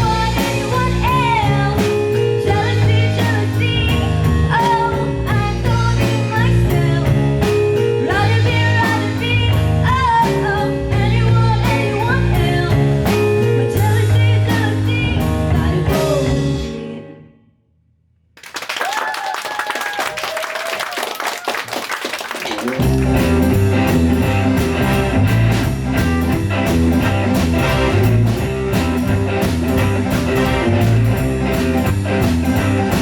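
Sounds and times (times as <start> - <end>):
band playing boogie-woogie: 0.0 - 16.8, 21.8 - 33.0
audience applauding: 18.4 - 23.5.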